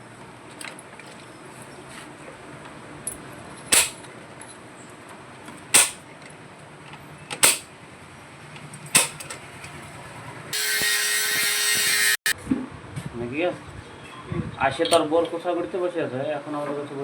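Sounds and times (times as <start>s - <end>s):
sharp knocks: 3.7s - 4.0s, 5.8s - 6.0s, 7.4s - 7.7s
power tool high hissing whine: 10.6s - 12.3s.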